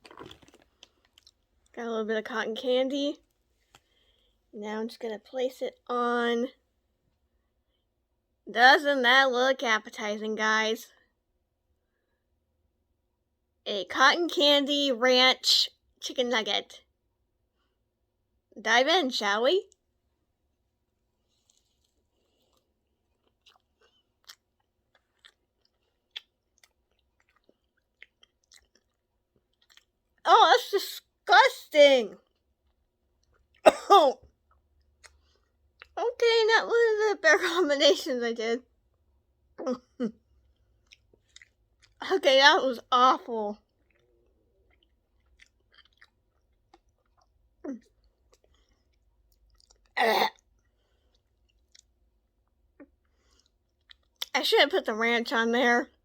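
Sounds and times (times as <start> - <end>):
person chewing: 0.0 - 1.7, 21.2 - 30.2, 32.2 - 33.6, 34.2 - 36.0, 40.3 - 42.0, 43.6 - 54.3
wet mouth clicks and smacks: 23.2 - 29.9.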